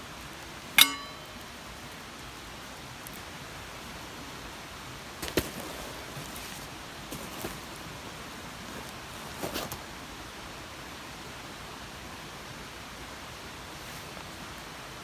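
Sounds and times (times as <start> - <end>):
rustling crackle: 5.1 - 10.0.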